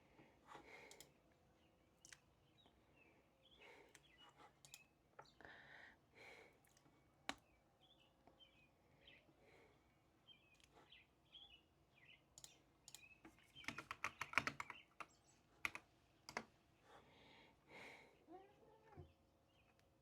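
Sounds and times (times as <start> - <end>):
faint bird chirps: 7.4 - 16.9
keyboard typing: 12.4 - 16.5.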